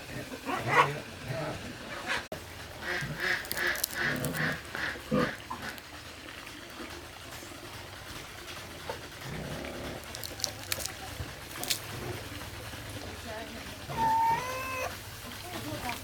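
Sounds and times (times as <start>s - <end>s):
farm animals calling: 2.8s - 5.8s, 13.9s - 15.0s.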